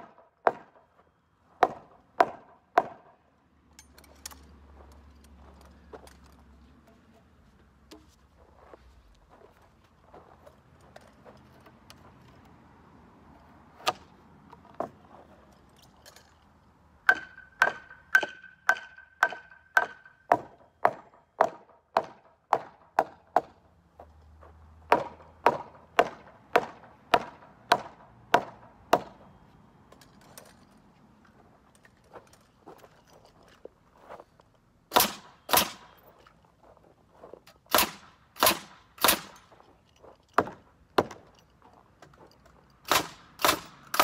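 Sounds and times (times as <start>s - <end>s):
hammer driving nails into wood: 0.0s - 0.8s, 1.6s - 3.1s, 17.0s - 23.6s, 24.9s - 29.2s, 34.9s - 36.0s, 37.7s - 39.5s, 40.4s - 41.3s, 42.8s - 44.0s.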